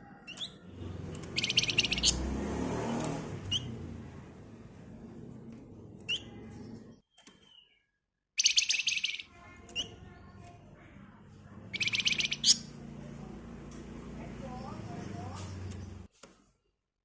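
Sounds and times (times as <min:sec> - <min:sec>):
songbird chirping: 0:00.0 - 0:03.8, 0:05.9 - 0:16.1
fast rattling bird trill: 0:01.2 - 0:02.2, 0:08.4 - 0:10.0, 0:11.7 - 0:12.8.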